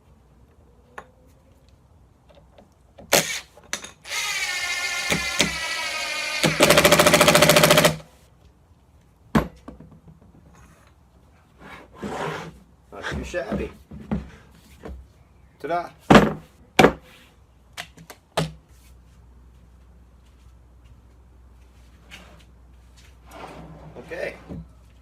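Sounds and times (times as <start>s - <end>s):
impact driver motor whining: 4.0s - 8.0s
impact driver hammering: 4.1s - 8.0s.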